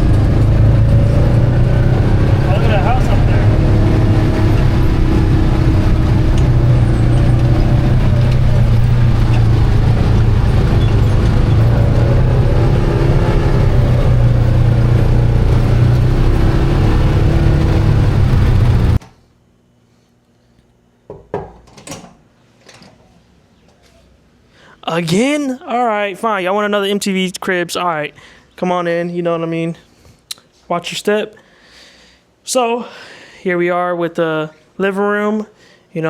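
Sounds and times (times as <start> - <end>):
atv engine droning: 0.0 - 19.0.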